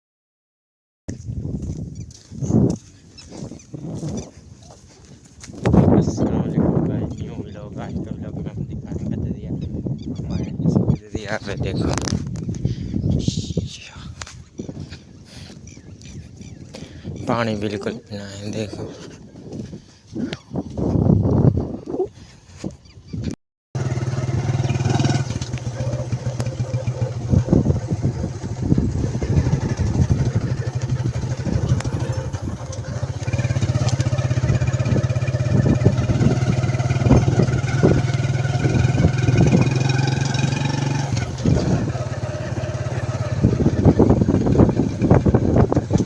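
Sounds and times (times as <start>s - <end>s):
vehicle engine running: 23.8s - 46.0s.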